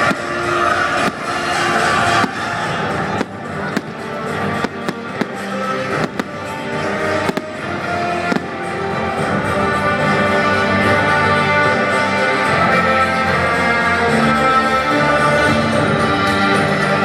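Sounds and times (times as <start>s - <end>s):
fireworks bangs: 0.0s - 10.2s
loud music: 0.0s - 17.0s.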